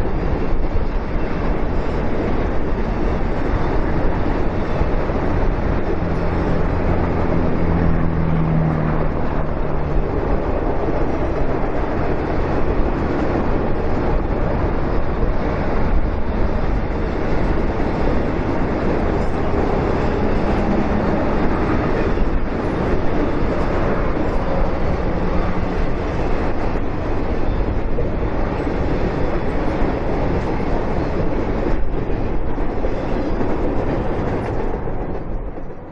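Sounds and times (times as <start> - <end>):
train wheels clattering over rails: 9.2 - 35.9.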